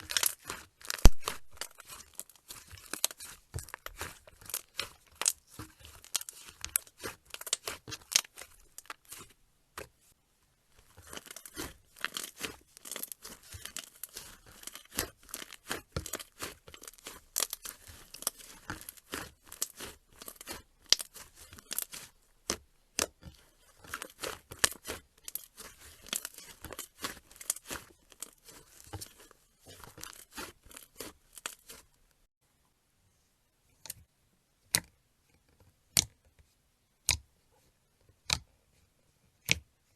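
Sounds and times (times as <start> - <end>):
slime crackling and popping: 0.0 - 9.9, 10.8 - 31.9.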